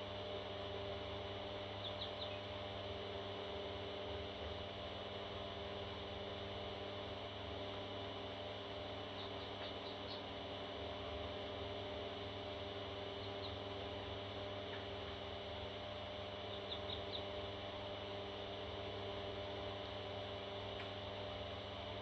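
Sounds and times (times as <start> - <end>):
electrical hum: 0.0 - 22.0
baby parrots chirping: 9.2 - 10.3, 13.2 - 13.6, 16.5 - 17.4.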